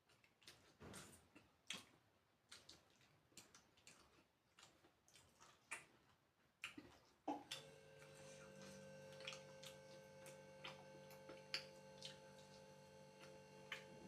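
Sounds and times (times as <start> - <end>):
faint electrical hum: 0.1 - 14.0.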